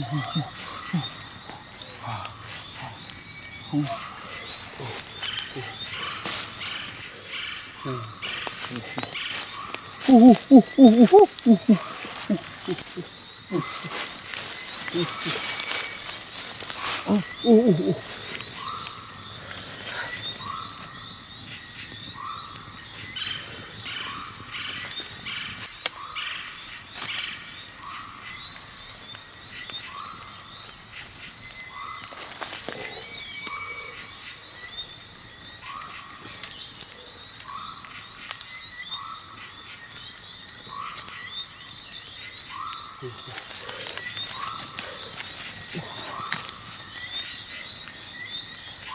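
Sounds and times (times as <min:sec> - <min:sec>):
animal calling: 0:00.0 - 0:22.6, 0:42.5 - 0:48.0
high insect-like tone: 0:00.0 - 0:48.9.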